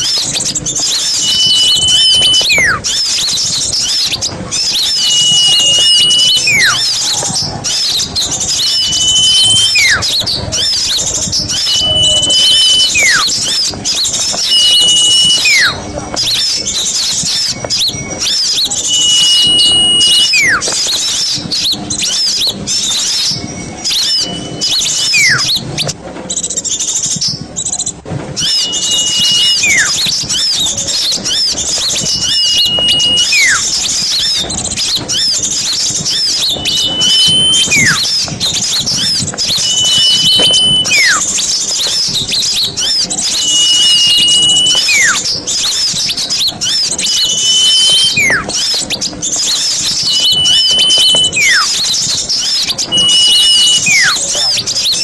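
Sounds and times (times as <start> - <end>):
songbirds chirping: 0.0 - 55.0
whistled note dropping in pitch: 0.9 - 3.0, 4.6 - 7.0, 8.5 - 13.5, 14.3 - 15.8, 18.2 - 20.7, 23.2 - 25.6, 28.4 - 30.7, 31.3 - 34.5, 36.1 - 41.5, 42.8 - 45.3, 46.6 - 48.7, 49.8 - 54.4.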